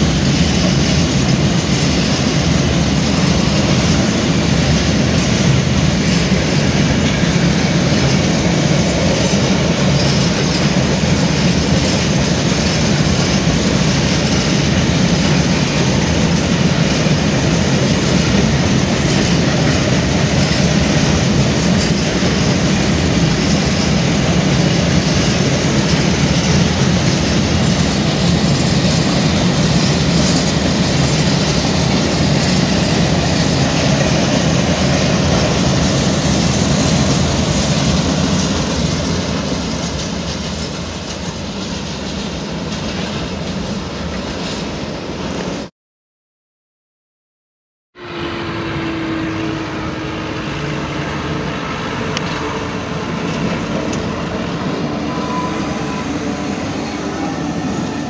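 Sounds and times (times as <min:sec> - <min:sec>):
wheels clattering over rail joints: 0:00.0 - 0:44.8
freight train rumble: 0:00.0 - 0:45.7, 0:48.0 - 0:58.0.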